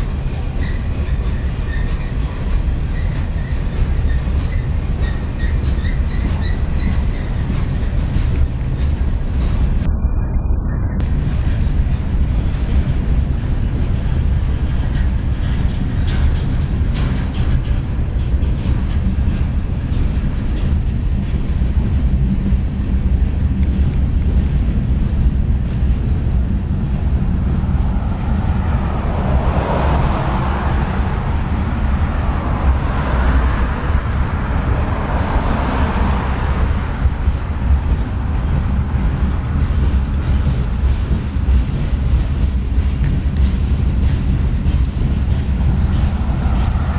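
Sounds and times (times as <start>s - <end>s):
freight train rumbling past: 0.0s - 46.9s
wheel and rail noise: 0.0s - 46.9s.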